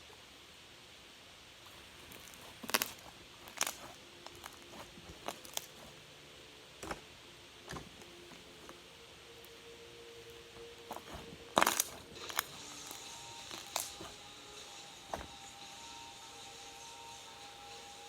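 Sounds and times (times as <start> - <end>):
slime popping and clicking: 10.9 - 14.1.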